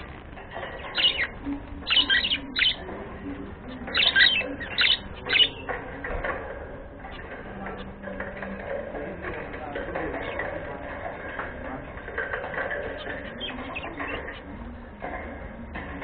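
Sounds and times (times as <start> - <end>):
budgerigar chirping: 0.8 - 2.8, 3.9 - 5.7.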